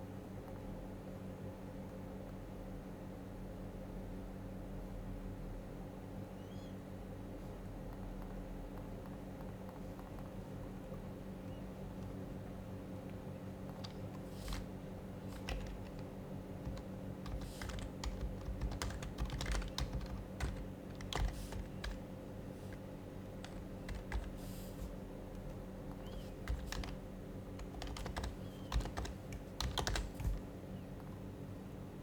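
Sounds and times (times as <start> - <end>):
keyboard keys clicking: 13.1 - 31.2.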